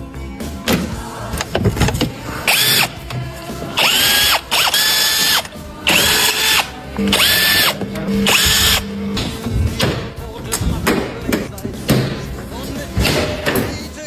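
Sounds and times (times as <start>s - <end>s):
power tool high whine: 2.5s - 3.0s, 3.8s - 9.0s.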